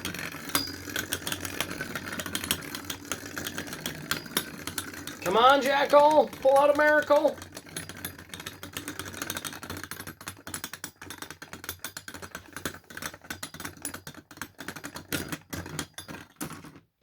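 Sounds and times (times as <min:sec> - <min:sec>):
spinning tops clattering in stadium: 0:00.0 - 0:09.4.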